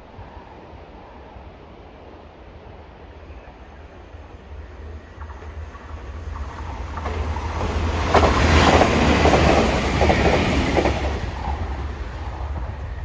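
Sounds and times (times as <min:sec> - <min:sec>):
diesel train rumbling past: 0:00.0 - 0:13.0
wheels clicking over rail joints: 0:05.1 - 0:12.7.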